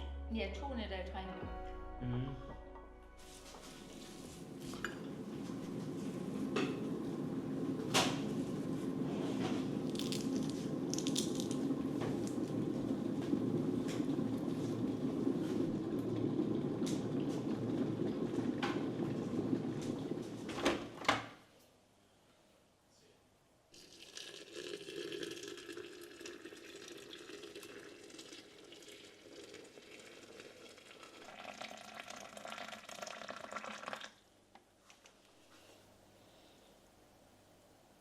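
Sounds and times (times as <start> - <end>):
tap water running into sink: 4.8 - 20.8.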